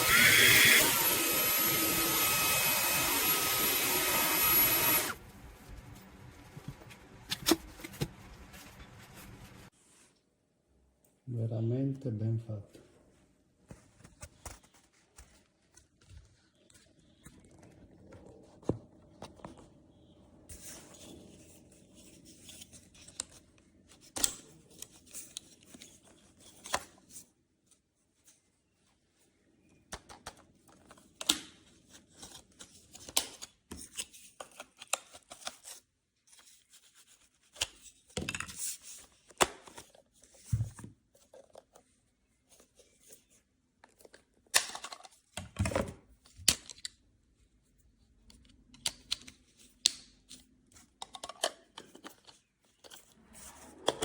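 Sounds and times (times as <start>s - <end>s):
rustling scrapes: 5.2s - 10.2s.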